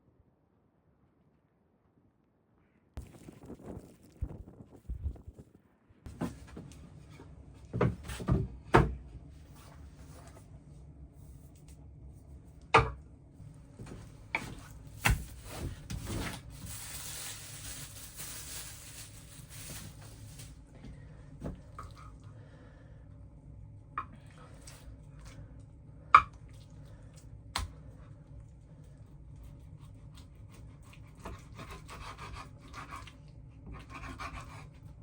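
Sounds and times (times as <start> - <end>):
objects knocking and clunking: 6.1 - 9.0.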